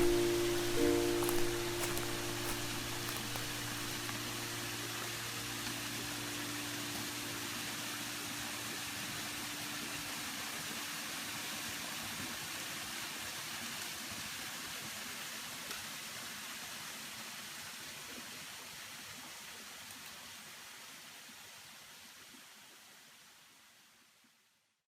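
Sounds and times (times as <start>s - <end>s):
waterfall rushing: 0.0s - 4.7s.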